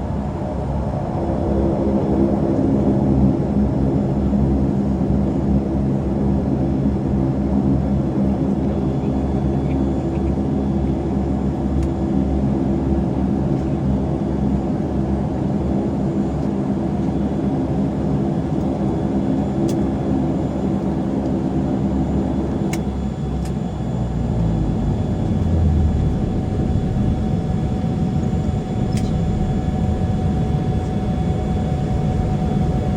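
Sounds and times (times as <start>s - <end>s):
turboprop engines droning: 0.0s - 32.9s
light clicks: 28.9s - 29.2s.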